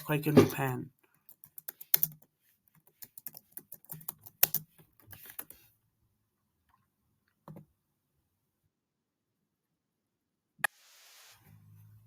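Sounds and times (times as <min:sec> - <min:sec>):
typing on computer keyboard: 0:01.2 - 0:05.6.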